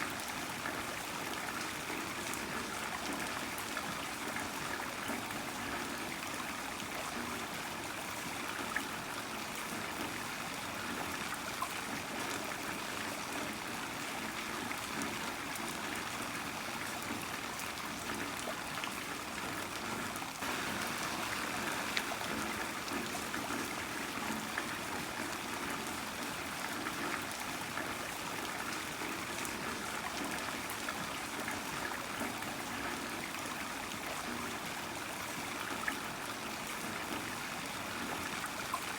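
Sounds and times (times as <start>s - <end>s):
heavy rain falling: 20.4s - 25.6s.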